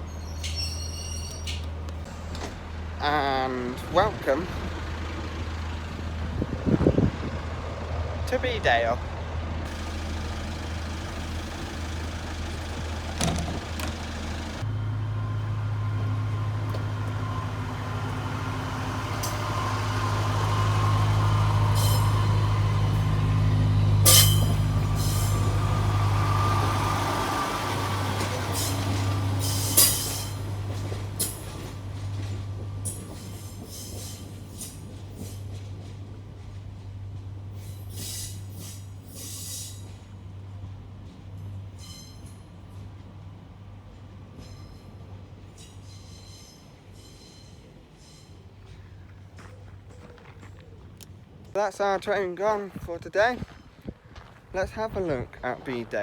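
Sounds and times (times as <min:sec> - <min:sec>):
diesel train engine: 0:00.0 - 0:56.0.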